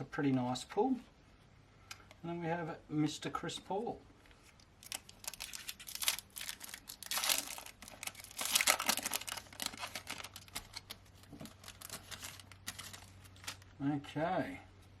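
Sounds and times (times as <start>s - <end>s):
foil wrapper tearing and crinkling: 4.8s - 13.7s.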